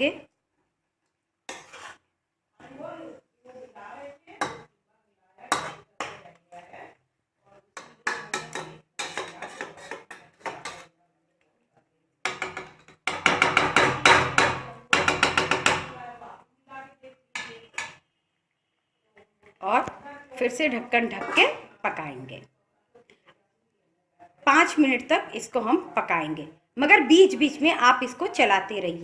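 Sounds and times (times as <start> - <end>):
ladle scraping cooking pot: 1.5 - 2.1, 7.8 - 10.9, 21.0 - 21.7.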